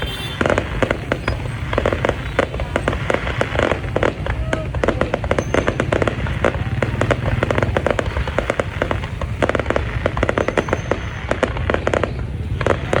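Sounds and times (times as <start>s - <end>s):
fireworks crackling and banging: 0.0s - 13.0s.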